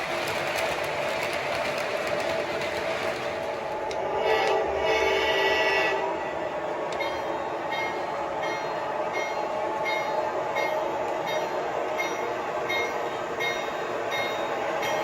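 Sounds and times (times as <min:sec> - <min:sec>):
rumble of passing train: 0:00.0 - 0:15.0
train horn: 0:03.9 - 0:06.5.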